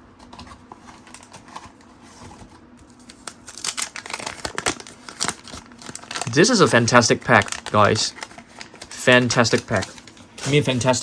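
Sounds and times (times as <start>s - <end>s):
trading cards handled: 0.2s - 11.0s
card pack wrapper crinkling: 2.8s - 11.0s.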